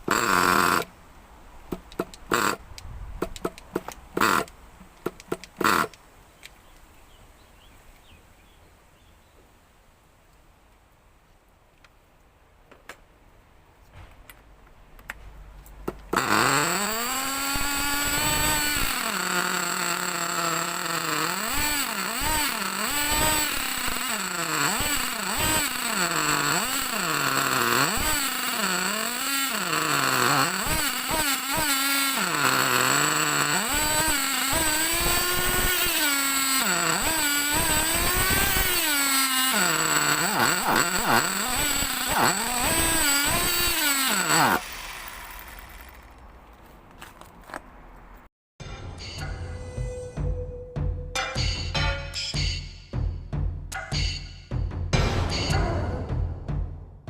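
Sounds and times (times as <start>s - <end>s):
model truck nitro engine revving: 0.0s - 1.0s, 2.3s - 2.6s, 16.1s - 46.3s.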